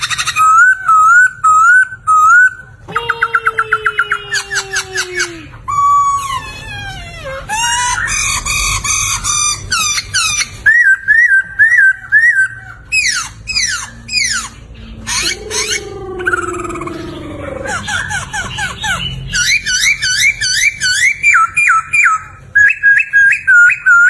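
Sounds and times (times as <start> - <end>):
bird whistling and trilling: 0.0 - 4.4, 7.5 - 24.0.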